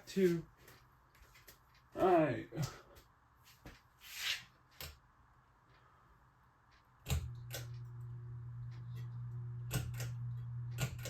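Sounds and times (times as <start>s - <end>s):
ceiling fan motor humming: 5.4s - 11.0s.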